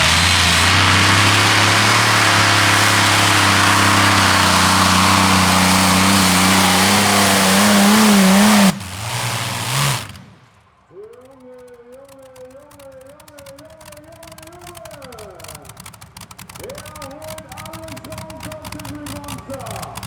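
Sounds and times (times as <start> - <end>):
engine cutting off and winding down: 0.0 - 10.6
tractor engine running flat out: 0.0 - 20.0.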